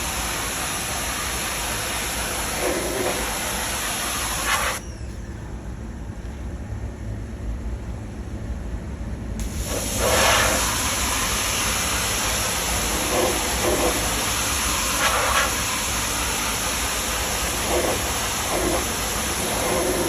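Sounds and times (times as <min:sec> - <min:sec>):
pressure washer spraying: 0:00.0 - 0:04.8, 0:09.4 - 0:20.0
low steady rumble: 0:04.8 - 0:09.7.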